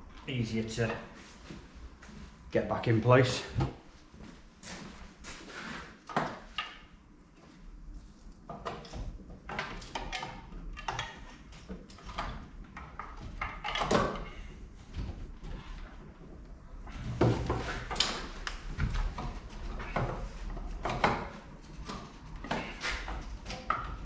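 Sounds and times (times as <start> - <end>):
hand tools clunking and scraping: 16.9 - 24.0.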